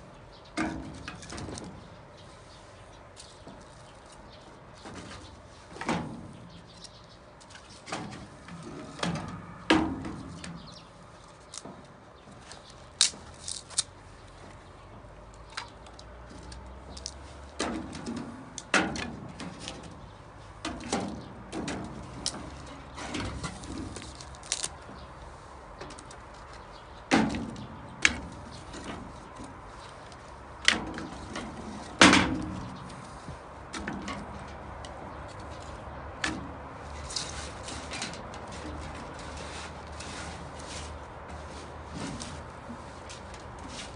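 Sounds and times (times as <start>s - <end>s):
sharp knocks and clunks: 4.8s - 6.6s, 7.8s - 10.7s, 27.0s - 29.6s, 30.6s - 33.0s.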